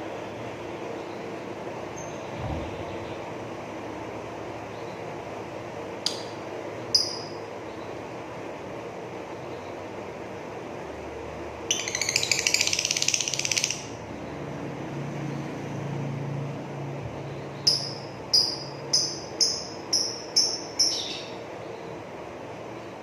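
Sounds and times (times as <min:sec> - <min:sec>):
lovebird sharp chirps: 0:06.1 - 0:07.4, 0:17.6 - 0:21.4
lovebird buzzy chatter: 0:11.7 - 0:14.1, 0:17.5 - 0:22.0.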